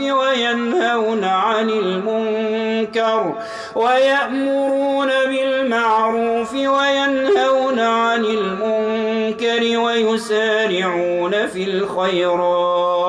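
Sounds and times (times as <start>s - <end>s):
man reciting melodically: 0.0s - 13.0s
quick breath: 3.4s - 3.8s.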